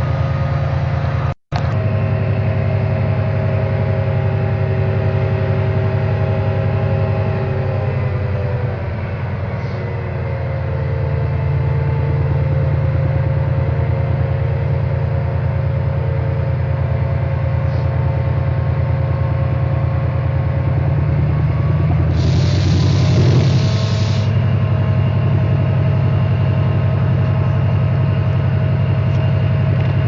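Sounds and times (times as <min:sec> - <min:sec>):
diesel locomotive engine rumbling: 0:00.0 - 0:30.0
burst of hissing: 0:22.1 - 0:24.4.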